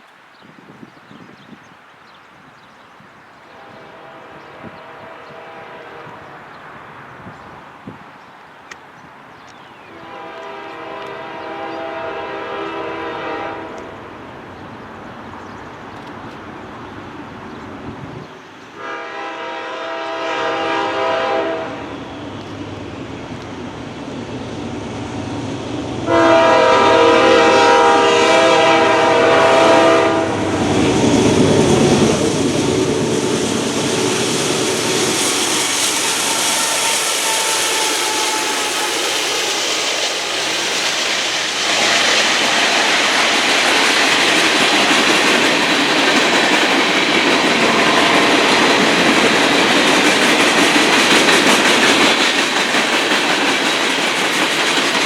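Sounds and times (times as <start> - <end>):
train horn chord: 3.5 - 6.3, 9.9 - 14.0, 18.8 - 22.0, 26.0 - 31.7, 34.5 - 39.5
train wheels on rails: 8.7 - 55.0.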